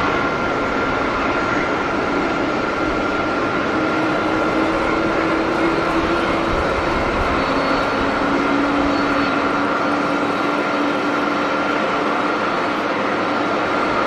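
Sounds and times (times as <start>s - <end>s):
high engine whine: 0.0s - 14.0s
jet engines roaring: 0.0s - 14.0s.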